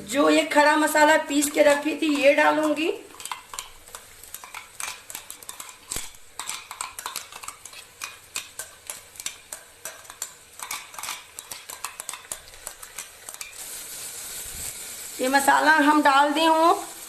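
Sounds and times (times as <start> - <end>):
metal spoon scraping cookware: 2.0 - 13.6.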